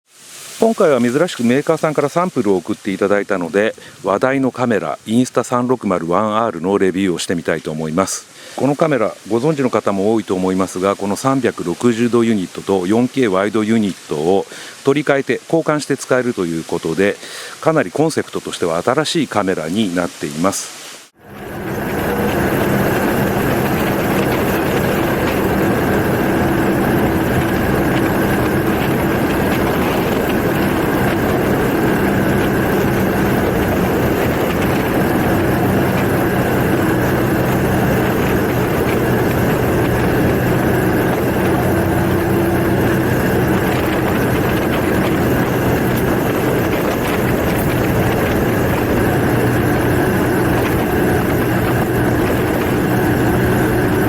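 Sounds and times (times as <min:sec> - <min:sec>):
wind and road hiss: 0:00.1 - 0:54.0
motorcycle engine running: 0:21.2 - 0:54.0.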